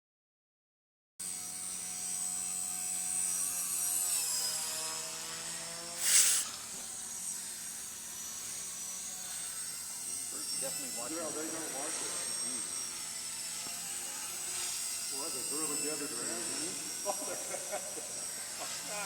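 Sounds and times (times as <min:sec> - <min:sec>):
rc helicopter rotor whine: 0:01.2 - 0:19.0
short loud hiss: 0:06.0 - 0:06.6.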